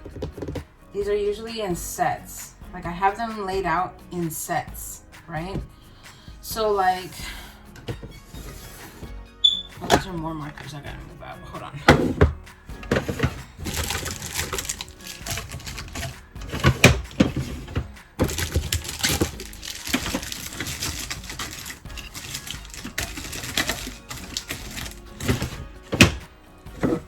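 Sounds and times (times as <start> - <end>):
background music: 0.0 - 27.0
clicks and knocks of small items: 12.8 - 26.2
packaging rustling: 13.0 - 26.2.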